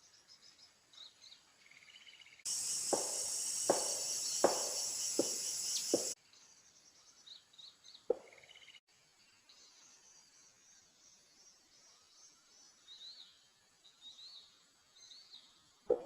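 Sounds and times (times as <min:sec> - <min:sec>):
faint bird chirps: 0:00.0 - 0:16.0
high insect drone: 0:02.5 - 0:06.2.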